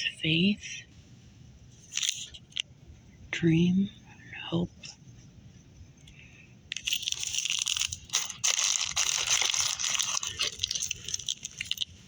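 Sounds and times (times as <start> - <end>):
plastic packaging crinkling: 6.7 - 12.0.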